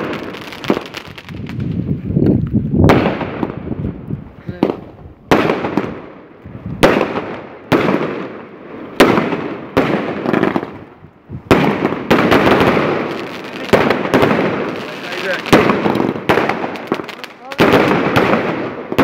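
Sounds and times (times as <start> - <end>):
fireworks bangs with echo: 0.0 - 1.9, 2.8 - 19.0.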